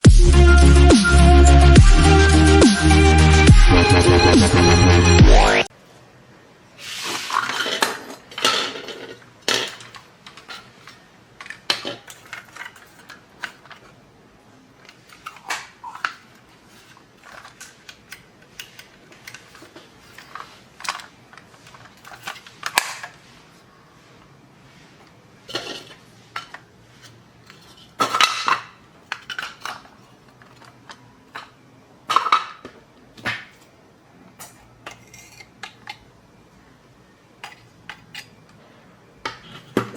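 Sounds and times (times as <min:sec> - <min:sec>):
small hard objects clattering: 0:07.0 - 0:14.0, 0:14.9 - 0:23.2.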